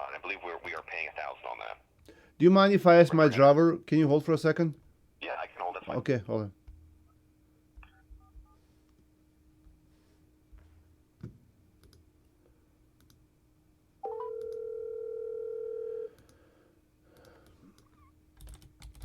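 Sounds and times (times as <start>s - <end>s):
telephone ringback tone: 14.0s - 16.1s.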